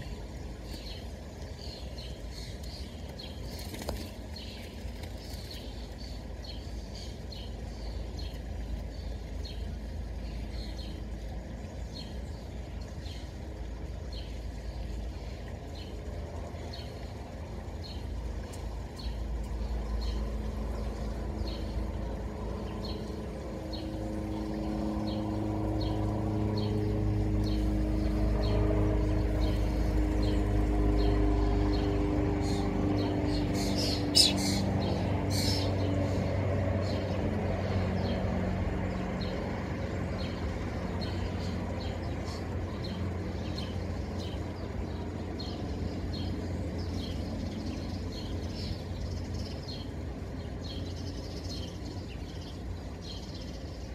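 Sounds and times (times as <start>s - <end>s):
low engine rumble: 0.0s - 53.9s
small bird chirping: 33.3s - 35.8s.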